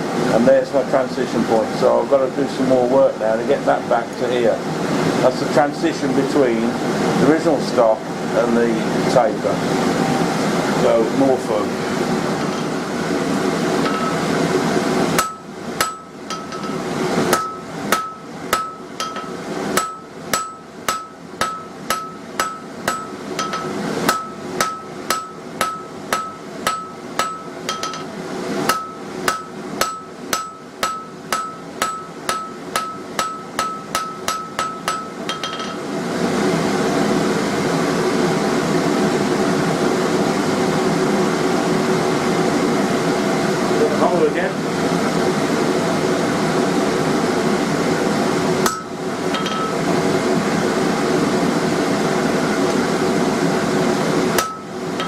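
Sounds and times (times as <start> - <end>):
hammer ringing on anvil: 15.2 - 28.1, 28.7 - 35.8, 48.6 - 49.8, 54.4 - 54.7.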